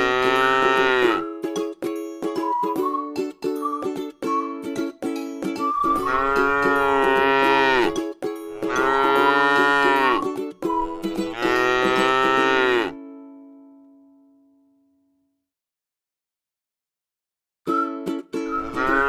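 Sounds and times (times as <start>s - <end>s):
cow mooing: 0.0s - 1.2s, 6.0s - 8.0s, 8.6s - 10.2s, 11.3s - 13.0s, 18.6s - 19.0s.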